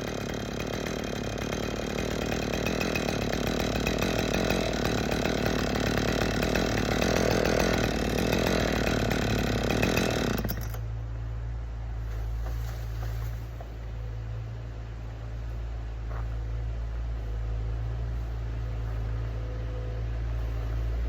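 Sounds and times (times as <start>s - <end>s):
chainsaw running: 0.0s - 10.9s.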